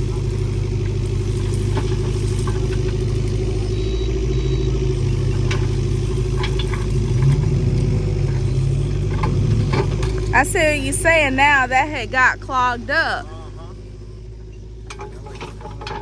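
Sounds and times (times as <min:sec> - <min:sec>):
digging machine engine running: 0:00.0 - 0:16.0
light clanks: 0:14.3 - 0:16.0.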